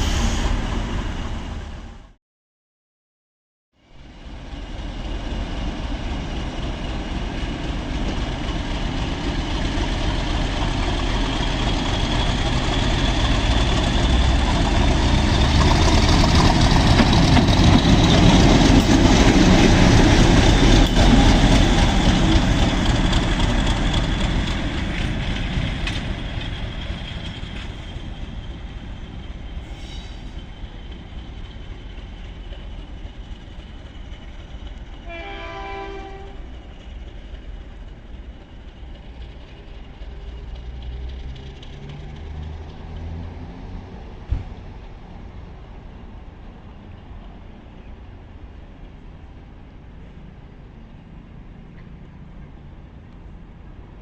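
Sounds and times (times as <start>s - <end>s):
train rumbling past: 0.0s - 2.2s, 3.8s - 54.0s.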